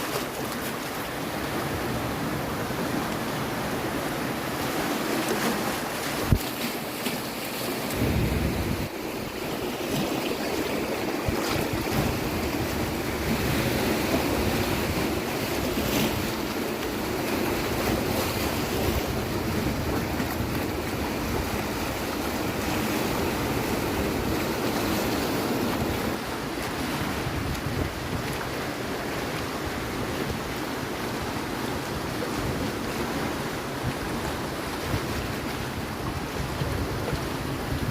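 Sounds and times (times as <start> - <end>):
sea waves washing onto beach: 0.0 - 37.9
wind rumbling on microphone: 7.9 - 37.9.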